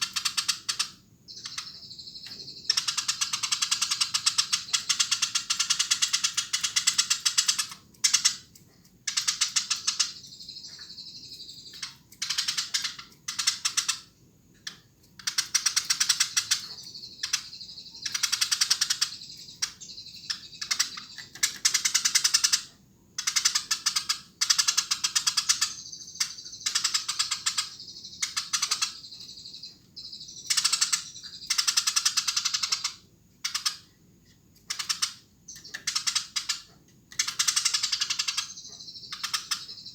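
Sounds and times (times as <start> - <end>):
sparrow chirping rapidly: 0.0 - 14.1, 14.7 - 33.9, 34.6 - 39.9.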